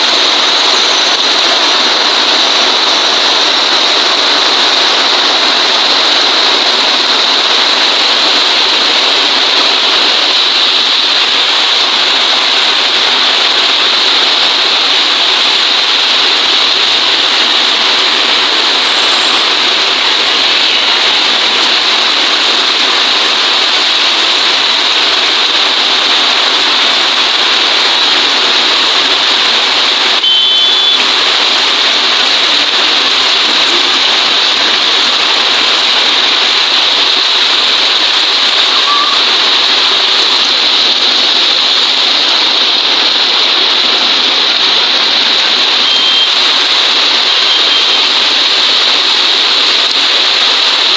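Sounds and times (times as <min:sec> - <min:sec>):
steady rain hiss: 0:00.0 - 0:50.9
brief high tone: 0:30.2 - 0:31.2, 0:38.6 - 0:39.5, 0:45.8 - 0:46.5, 0:47.2 - 0:48.2.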